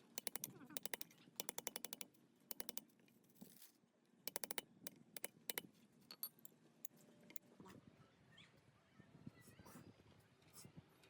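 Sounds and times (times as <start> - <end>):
light metallic clicks and clinks: 4.3 - 7.4.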